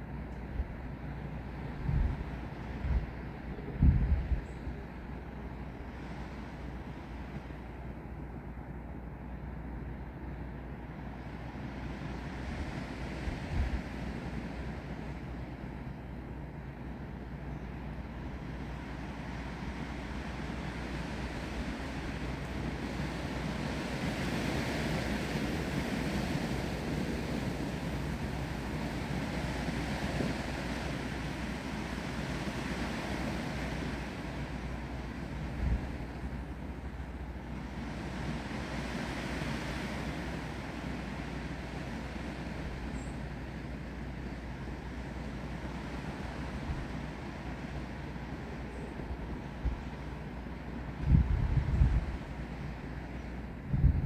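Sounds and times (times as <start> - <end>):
wind gusting through trees: 0.0 - 54.0
rain: 18.4 - 50.8.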